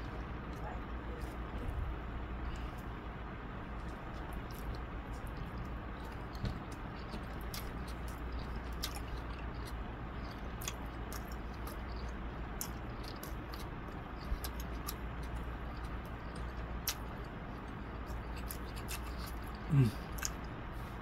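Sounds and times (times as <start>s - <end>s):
low background hum: 0.0s - 21.0s
wet mouth clicks while chewing: 3.8s - 17.1s, 18.1s - 20.6s.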